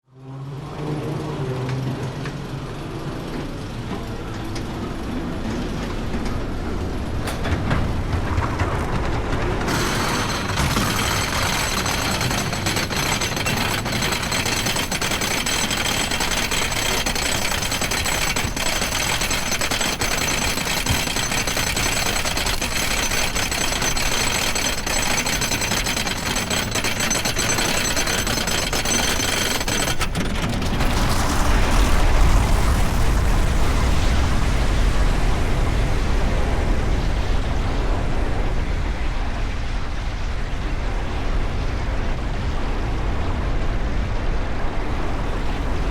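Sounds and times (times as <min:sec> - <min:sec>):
thin mechanical whine: 0:00.2 - 0:34.2
wheels rumbling on wooden track: 0:00.7 - 0:34.7
roller coaster chain lift clatter: 0:00.8 - 0:33.5.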